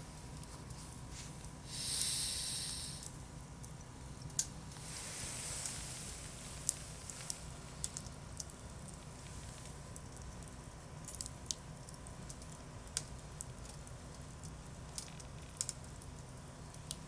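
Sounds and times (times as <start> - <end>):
fire crackles and pops: 0.2 - 17.0
campfire hissing: 1.1 - 3.2, 4.6 - 7.9.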